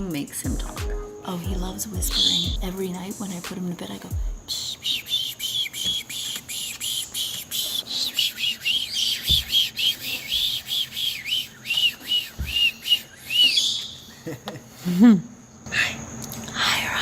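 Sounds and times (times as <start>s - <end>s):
parrot whispering psh sounds: 4.4s - 14.0s.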